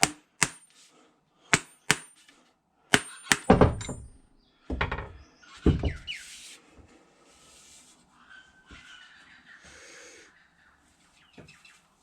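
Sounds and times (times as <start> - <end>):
sharp knocks with metallic ring: 0.0 - 0.7, 1.5 - 2.3, 2.9 - 5.1.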